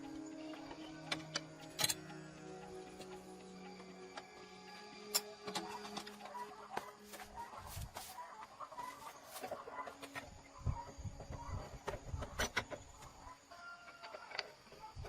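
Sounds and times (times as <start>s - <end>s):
tools clicking and knocking: 1.1s - 2.1s, 13.9s - 14.8s
chickens clucking: 5.2s - 15.0s.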